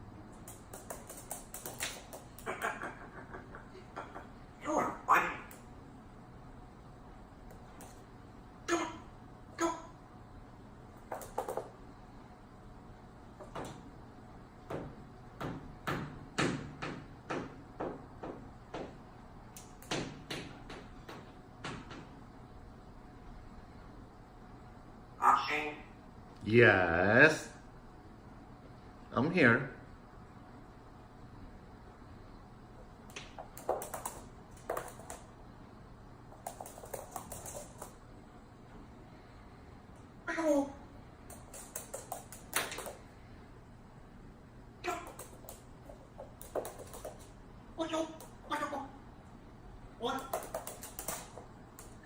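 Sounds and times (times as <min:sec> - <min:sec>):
parrot tapping and clicking: 0:00.4 - 0:03.0, 0:11.1 - 0:11.7, 0:33.1 - 0:35.3, 0:36.4 - 0:37.9, 0:41.3 - 0:43.0, 0:44.9 - 0:47.3, 0:50.0 - 0:52.0
parrot tapping at a mirror: 0:50.0 - 0:51.4.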